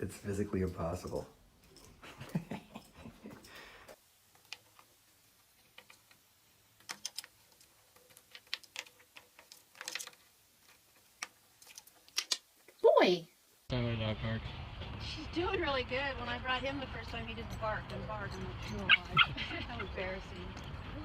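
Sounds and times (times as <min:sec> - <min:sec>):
light clicks and taps: 0:00.6 - 0:02.0.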